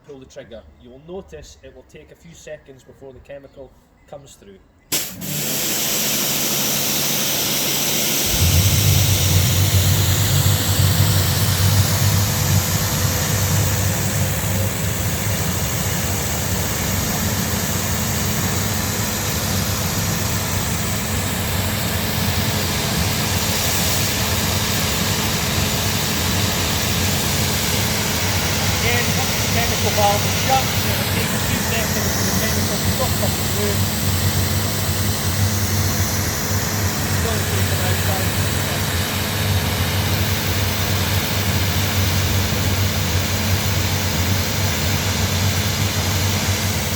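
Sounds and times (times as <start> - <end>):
high-pressure water jet hissing: 4.9 - 46.9
pressure washer motor and pump: 4.9 - 46.9
deep low hum: 8.2 - 19.0.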